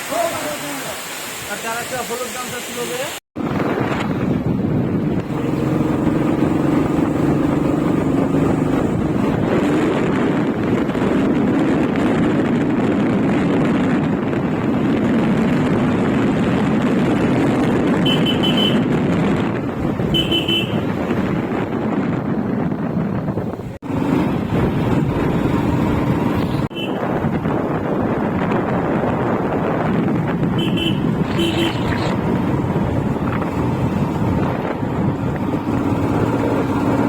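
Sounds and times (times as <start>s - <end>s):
motorcycle engine: 3.4s - 12.4s, 14.4s - 37.0s
wind on microphone: 3.4s - 37.0s
vehicle horn beeps: 18.0s - 19.0s, 20.1s - 20.9s, 26.7s - 27.1s, 30.6s - 32.0s.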